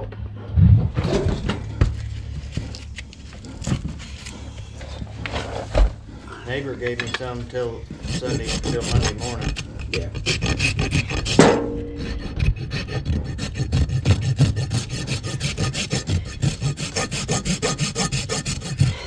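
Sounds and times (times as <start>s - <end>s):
hoof rasp filing: 6.5s - 19.0s.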